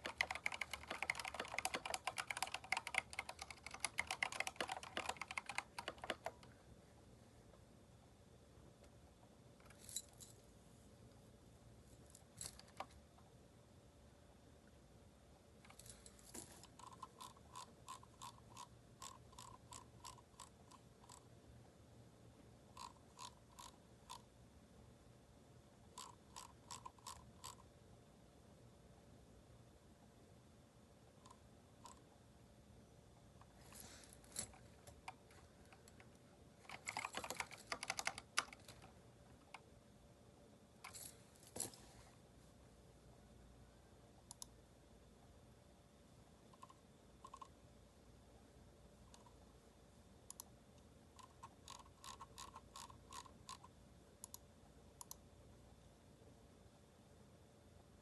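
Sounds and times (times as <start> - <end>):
mechanical keyboard keystrokes: 0.0 - 6.6, 34.4 - 39.6
mechanical keyboard typing: 0.0 - 6.6, 16.6 - 21.2, 22.8 - 24.3, 26.0 - 27.6, 34.4 - 39.6, 46.6 - 47.5, 51.2 - 54.4.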